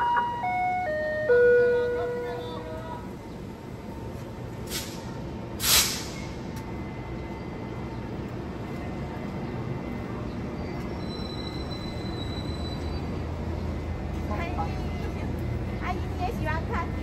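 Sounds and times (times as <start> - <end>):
train locomotive rumbling: 0.0 - 17.0
short sharp hiss: 4.7 - 6.4
faint high wheel squeal: 10.5 - 13.2.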